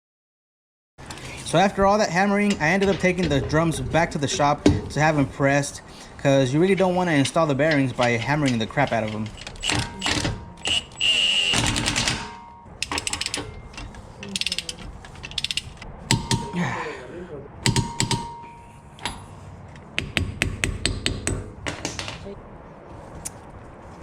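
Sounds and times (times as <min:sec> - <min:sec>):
metal scraping: 0:01.0 - 0:16.6
shop press metal clicks and knocks: 0:02.4 - 0:05.0, 0:11.6 - 0:16.5, 0:17.7 - 0:19.2.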